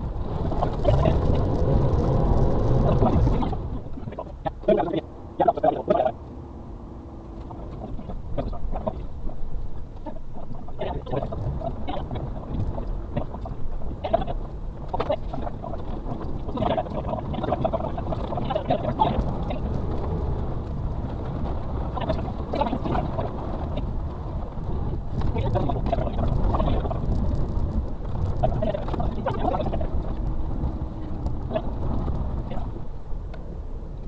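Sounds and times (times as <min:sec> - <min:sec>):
truck engine running under load: 0:00.0 - 0:34.0
vehicle body knocking and rattling: 0:07.3 - 0:33.5.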